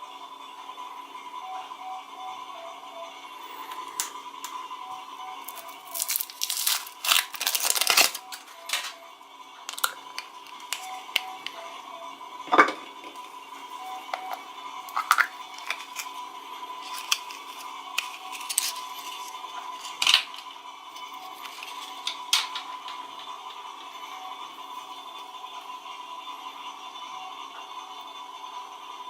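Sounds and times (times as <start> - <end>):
faint steady hum: 0.0 - 29.0
plastic packaging crinkling: 5.4 - 9.0, 9.6 - 11.6, 14.2 - 16.2, 16.8 - 20.4.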